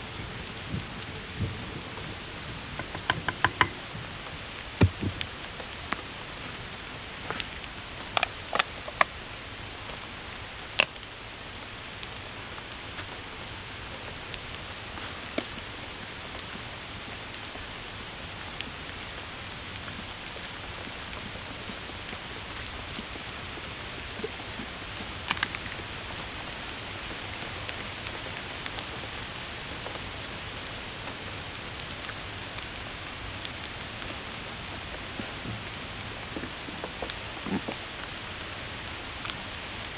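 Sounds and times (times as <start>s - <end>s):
rain pattering: 0.0s - 39.9s
heavy drops ticking: 2.7s - 5.4s.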